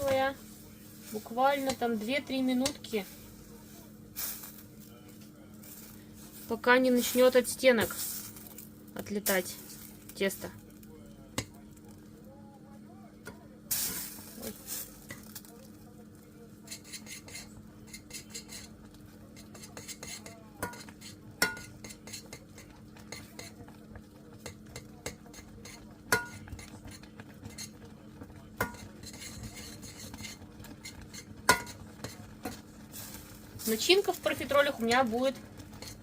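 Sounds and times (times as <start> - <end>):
utensil scraping and slapping pan: 0.0 - 3.5, 16.6 - 23.8, 24.4 - 36.0
sharp knocks on pan: 21.4 - 21.7, 26.1 - 26.4, 31.5 - 31.8.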